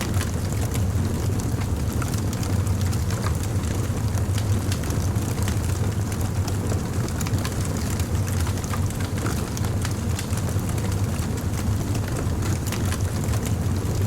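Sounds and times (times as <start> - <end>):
fire crackling: 0.0 - 14.0.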